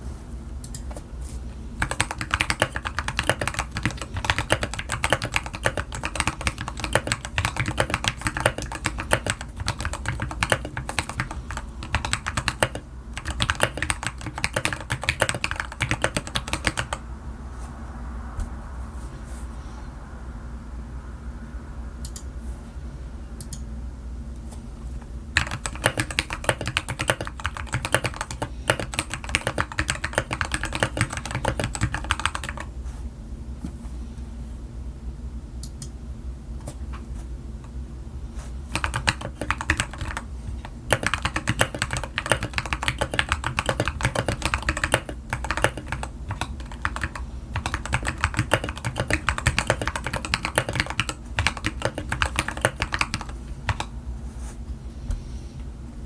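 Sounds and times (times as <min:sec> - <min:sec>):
typing on mechanical keyboard: 0:01.8 - 0:17.0, 0:25.4 - 0:32.7, 0:38.7 - 0:53.9.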